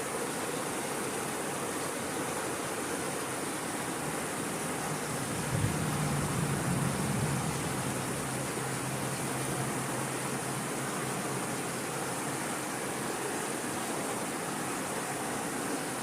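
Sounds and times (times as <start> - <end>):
water rushing: 0.0 - 16.0
low hum: 5.0 - 11.4.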